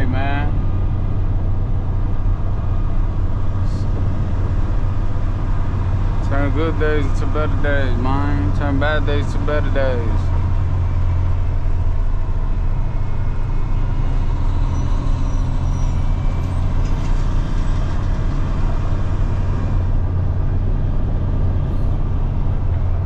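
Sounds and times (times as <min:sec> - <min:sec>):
road noise: 0:00.0 - 0:23.0
truck diesel engine drone: 0:00.0 - 0:23.0.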